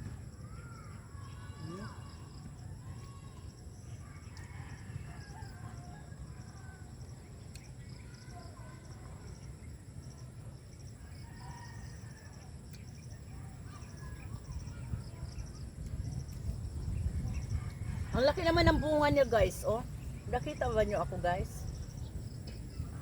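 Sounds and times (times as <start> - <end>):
low rumble: 14.4 - 23.0.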